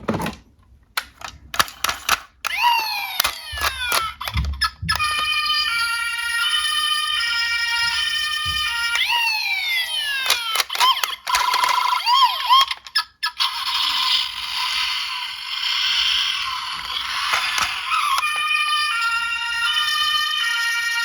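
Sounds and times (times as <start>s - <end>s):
clicks: 1.0s - 5.3s, 10.1s - 13.5s, 15.9s - 19.0s
electronic police siren: 2.5s - 12.8s, 13.4s - 21.0s.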